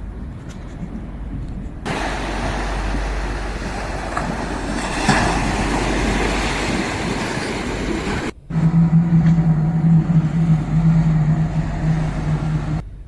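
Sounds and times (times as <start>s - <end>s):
wind rumbling on microphone: 0.0s - 13.0s
sea surf washing on beach: 1.8s - 12.8s.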